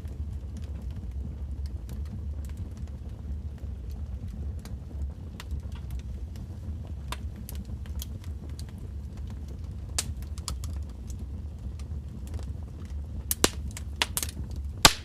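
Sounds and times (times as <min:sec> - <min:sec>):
steady low rumble: 0:00.0 - 0:15.0
wood fire crackling: 0:00.0 - 0:15.0
sharp pops and snaps: 0:10.0 - 0:11.2, 0:13.3 - 0:15.0.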